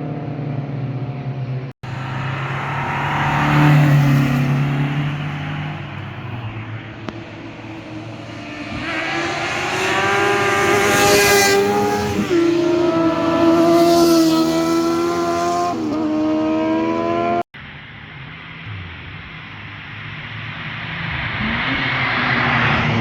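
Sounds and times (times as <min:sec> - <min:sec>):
car driving past: 0:01.8 - 0:17.4, 0:20.6 - 0:23.0.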